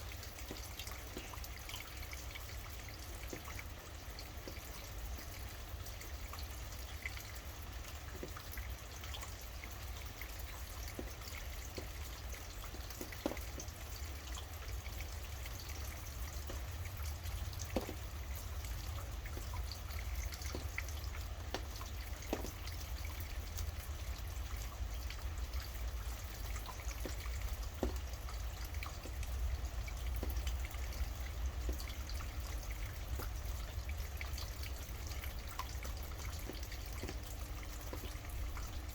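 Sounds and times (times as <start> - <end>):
low steady rumble: 0.0 - 38.9
sharp close drips: 0.0 - 38.9
steady rain: 0.0 - 38.9.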